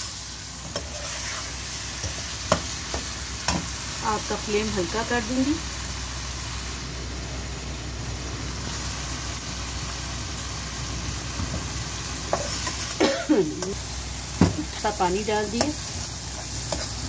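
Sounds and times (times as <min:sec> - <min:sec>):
potatoes sizzling in a wok: 0:00.0 - 0:17.0.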